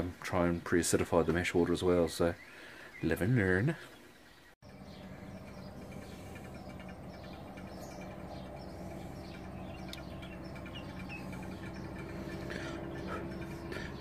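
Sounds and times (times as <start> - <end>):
faint birds chirping: 0.0 - 14.0
steady low hum: 4.6 - 14.0.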